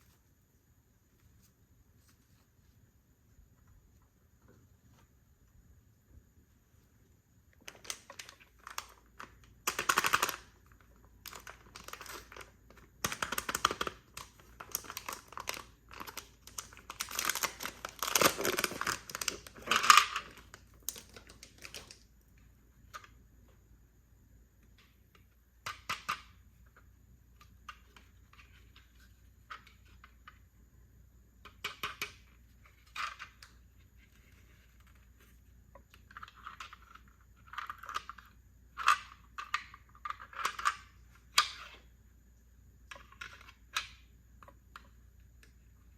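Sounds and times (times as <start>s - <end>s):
small plastic pieces clicking: 7.6s - 22.2s, 24.8s - 30.4s, 35.7s - 41.8s, 42.8s - 45.6s
plastic packaging crinkling and tearing: 13.1s - 22.0s.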